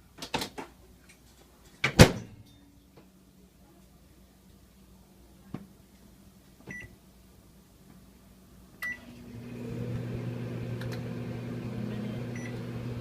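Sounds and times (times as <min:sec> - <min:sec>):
microwave oven humming: 0:08.8 - 0:13.0.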